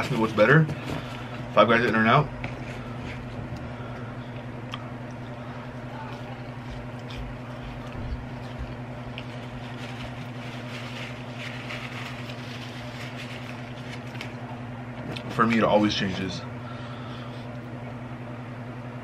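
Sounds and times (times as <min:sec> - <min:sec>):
steady low hum: 0:00.0 - 0:19.0
faint chewing and mouth sounds: 0:05.8 - 0:14.3
paper napkin rustling: 0:06.0 - 0:14.6.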